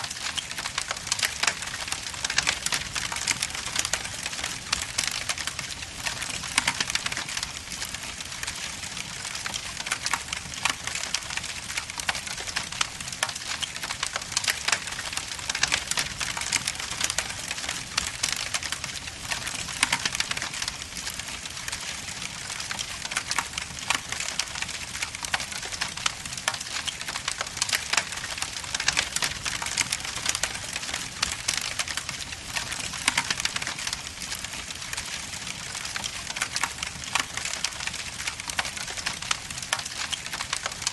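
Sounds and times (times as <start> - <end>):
logs crackling in fireplace: 0.0 - 40.9.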